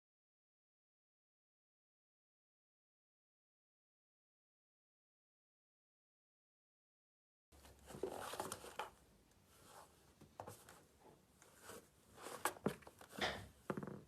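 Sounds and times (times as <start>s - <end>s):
rustling: 7.6s - 13.8s.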